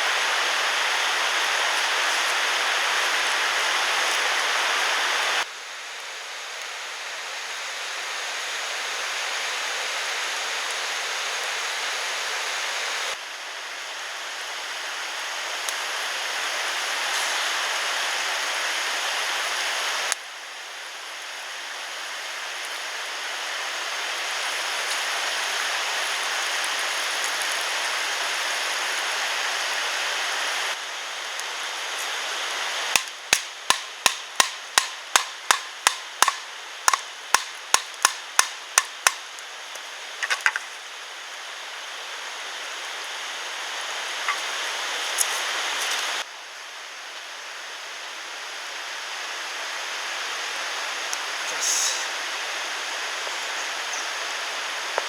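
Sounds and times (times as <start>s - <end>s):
stream water rushing: 0.0s - 5.5s, 6.8s - 55.0s
tool striking wood: 33.0s - 39.2s.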